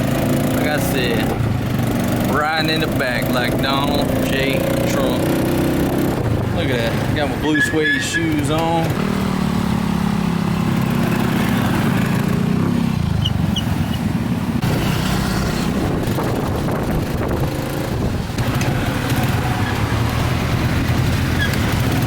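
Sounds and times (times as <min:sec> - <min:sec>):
vehicle engine running: 0:08.4 - 0:22.0.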